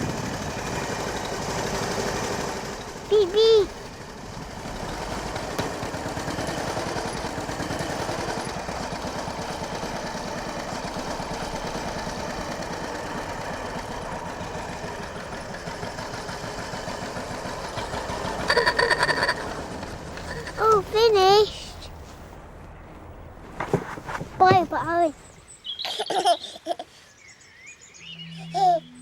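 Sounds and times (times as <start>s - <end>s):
motorcycle engine running: 0.0s - 20.7s.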